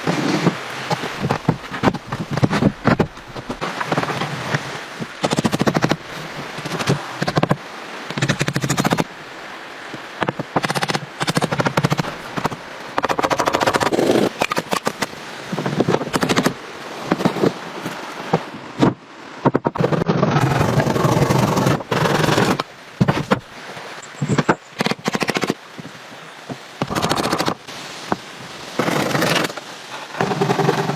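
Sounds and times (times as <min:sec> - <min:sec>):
rough scraping: 0:28.8 - 0:30.9.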